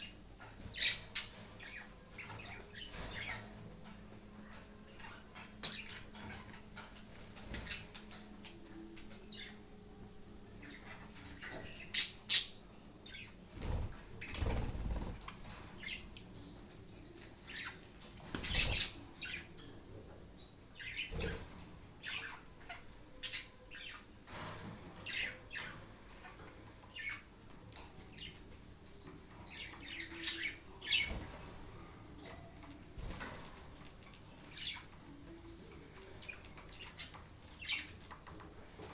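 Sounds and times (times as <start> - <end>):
wings fluttering and rustling: 0.0 - 9.2, 13.3 - 19.4, 30.8 - 38.9
budgerigars chirping: 11.4 - 15.2.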